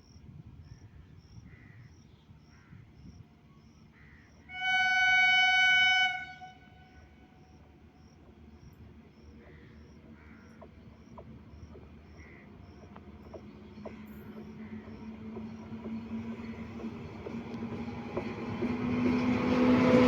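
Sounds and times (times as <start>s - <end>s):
insects chirping: 0.0s - 20.0s
train horn blast: 4.5s - 7.5s.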